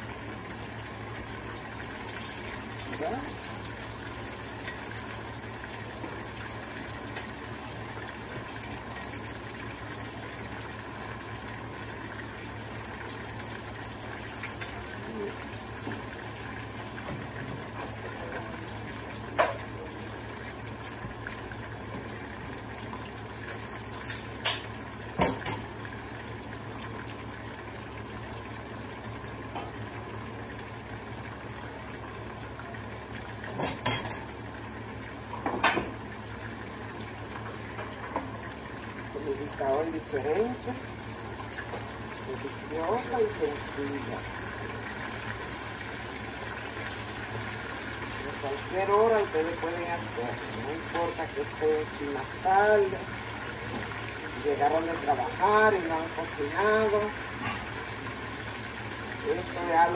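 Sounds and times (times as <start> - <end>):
food sizzling in oil: 0.0 - 59.9.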